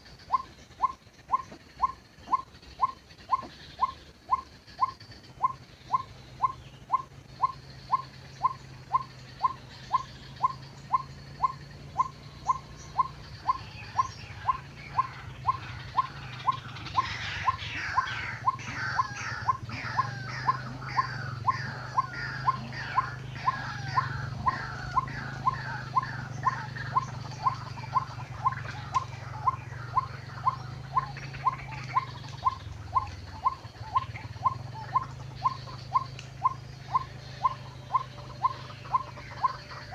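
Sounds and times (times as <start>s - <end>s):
chorus of slurred waterhen calls: 0.0s - 39.9s
steady low hum: 0.0s - 39.9s
waterhen falling call: 12.6s - 39.9s.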